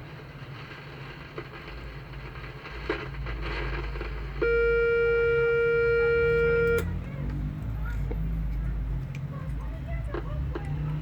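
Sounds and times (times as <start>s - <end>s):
multimeter buzzer beep: 4.4s - 6.9s.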